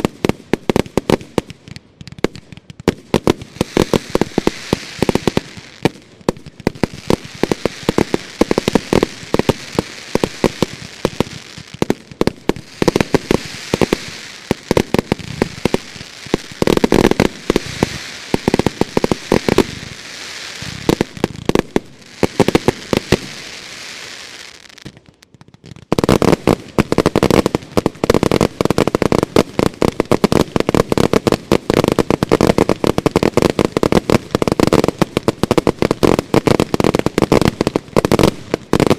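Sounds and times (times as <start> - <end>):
fireworks bangs: 0.0 - 38.9
fireworks crackling hiss: 0.0 - 38.9.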